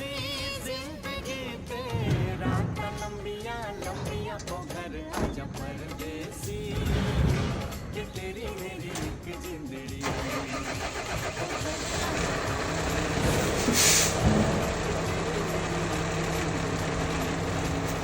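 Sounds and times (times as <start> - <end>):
vehicle engine starting and idling: 0.0 - 18.0
short hiss: 13.6 - 14.2.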